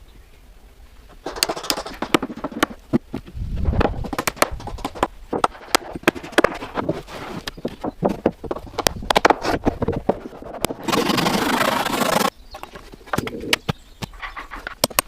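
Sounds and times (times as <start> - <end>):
rapid knocks and clicks: 1.2 - 11.1.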